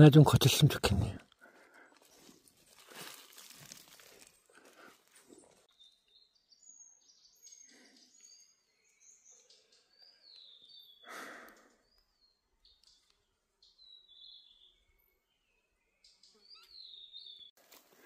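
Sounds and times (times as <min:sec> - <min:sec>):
breathy rustle: 0:01.4 - 0:05.7
scuffing in soil: 0:02.0 - 0:05.7, 0:17.6 - 0:18.0
faint high whistled birdsong: 0:05.3 - 0:17.6.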